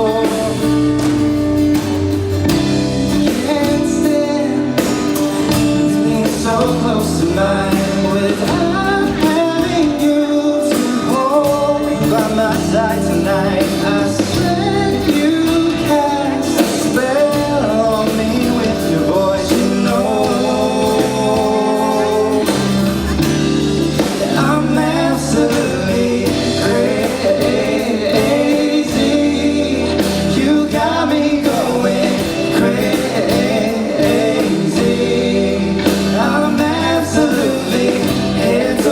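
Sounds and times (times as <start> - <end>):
live pop-rock band playing: 0.0 - 38.9
person singing: 0.0 - 38.9.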